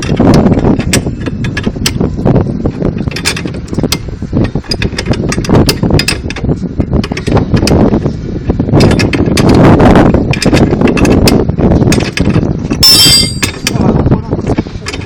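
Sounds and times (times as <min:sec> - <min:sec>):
steady low rumble: 0:00.0 - 0:15.0
mechanical clicks and knocks: 0:08.8 - 0:09.6, 0:10.3 - 0:13.8.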